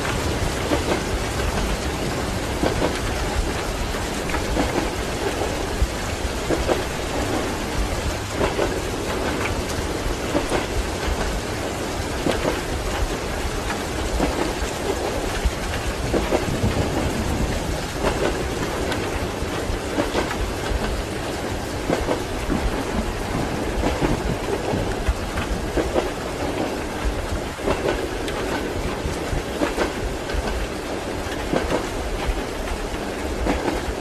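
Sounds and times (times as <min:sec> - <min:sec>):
steady rain: 0:00.0 - 0:34.0
train rumbling: 0:00.0 - 0:34.0
train wheels clacking on rails: 0:00.0 - 0:34.0.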